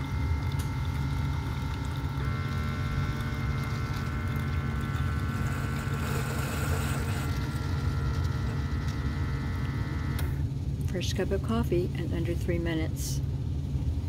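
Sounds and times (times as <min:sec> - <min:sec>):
coffee running into cup: 0:00.0 - 0:10.2
coffee maker pump humming: 0:00.0 - 0:14.0
hot water hissing: 0:00.8 - 0:07.5.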